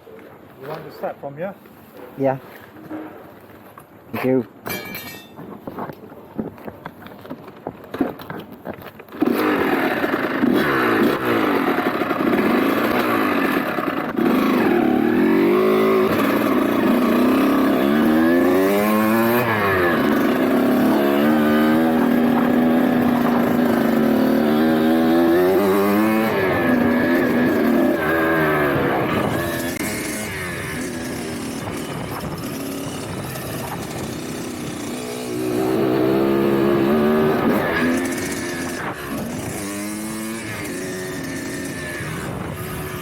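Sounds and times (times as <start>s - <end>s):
dirt bike engine revving: 9.2s - 43.0s.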